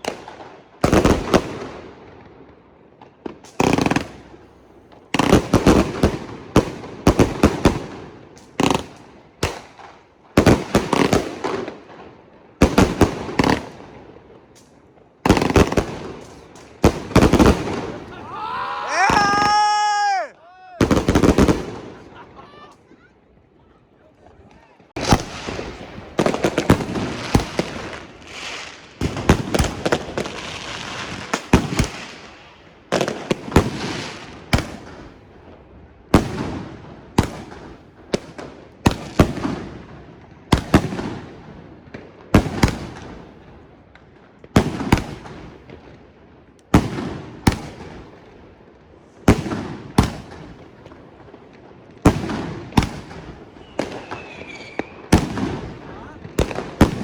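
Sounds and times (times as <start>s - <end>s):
fireworks bangs: 3.0s - 23.0s, 24.3s - 35.2s, 49.2s - 57.0s.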